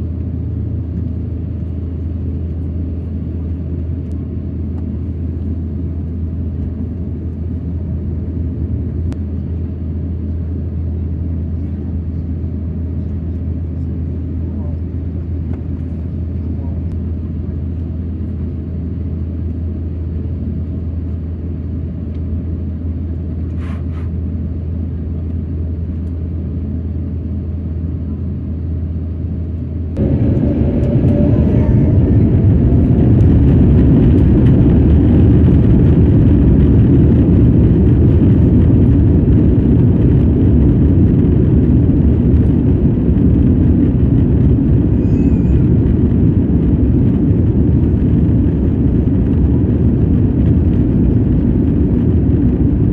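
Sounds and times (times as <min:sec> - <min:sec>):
airliner cabin drone: 0:00.0 - 0:52.9
rising whine: 0:29.8 - 0:52.9
loud rushing noise: 0:30.0 - 0:36.0.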